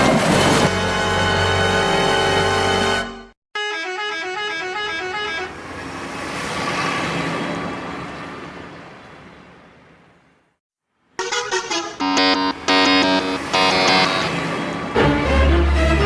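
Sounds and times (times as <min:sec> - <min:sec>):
rushing noise: 0:12.3 - 0:16.0.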